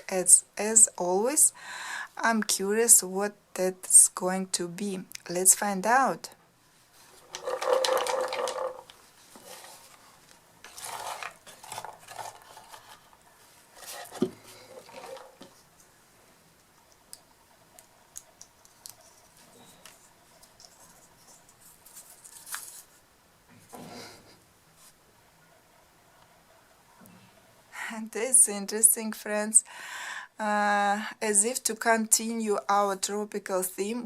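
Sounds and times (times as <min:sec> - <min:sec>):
paper rustling: 0:06.9 - 0:15.7, 0:18.6 - 0:23.0.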